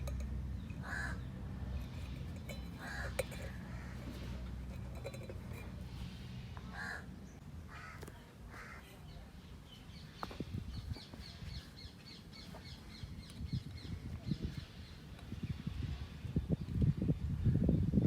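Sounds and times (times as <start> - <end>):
steady low hum: 0.0 - 7.7
crows cawing: 0.8 - 1.3, 6.7 - 7.1, 7.7 - 8.8.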